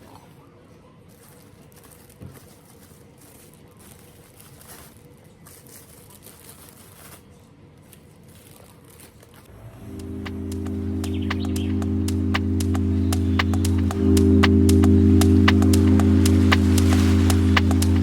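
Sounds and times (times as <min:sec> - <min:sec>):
rustling and clicking handling noise: 0:01.1 - 0:09.5.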